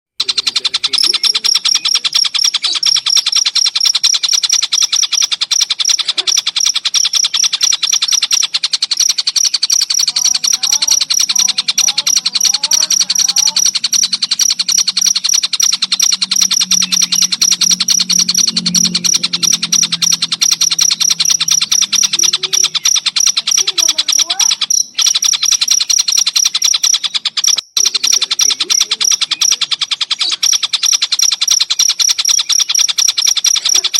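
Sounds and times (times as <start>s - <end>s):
crickets chirping: 0.2s - 33.9s
kingfisher calls: 0.2s - 33.9s
low gliding bird notes: 0.3s - 33.8s.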